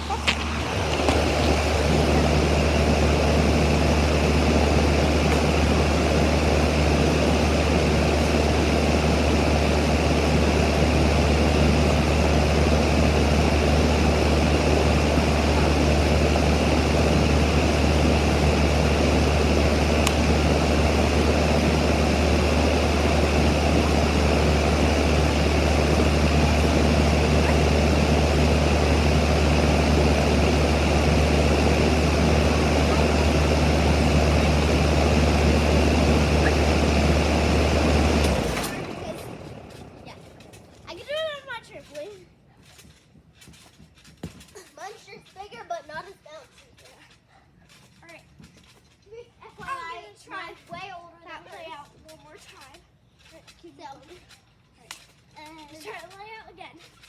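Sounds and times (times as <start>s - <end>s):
machine drone with hum and hiss: 0.0s - 40.9s.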